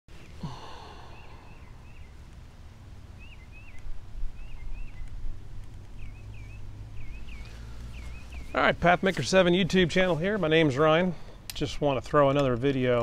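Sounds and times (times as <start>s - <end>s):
bird singing whistled notes: 1.1s - 2.2s, 3.2s - 5.2s, 6.0s - 8.6s.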